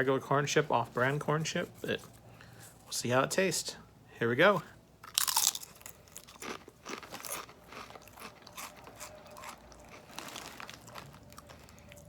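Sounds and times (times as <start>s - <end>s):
chewing crunchy chip: 5.0s - 12.0s.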